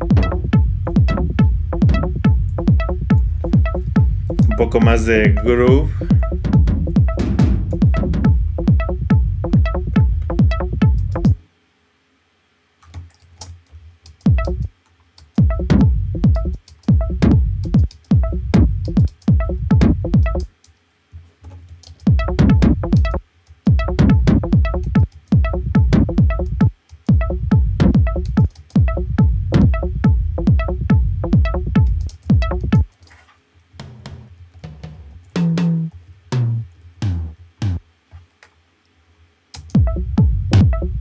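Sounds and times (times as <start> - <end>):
techno loop: 0.0 - 11.4, 14.2 - 14.7, 15.4 - 20.5, 22.0 - 32.9, 39.6 - 41.0.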